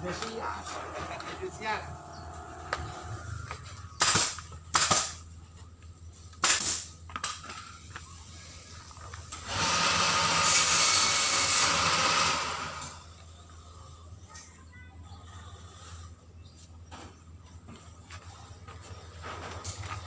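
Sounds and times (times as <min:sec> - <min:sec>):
workshop tool hissing bursts: 0:09.4 - 0:13.0.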